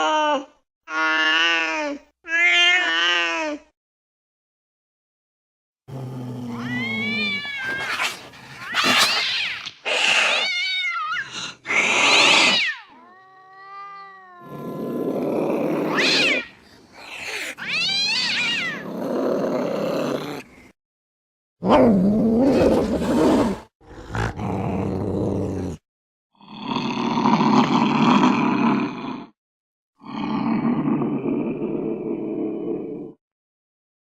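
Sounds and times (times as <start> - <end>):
cats hissing: 6.2 - 18.9
cats yowling: 6.4 - 18.9.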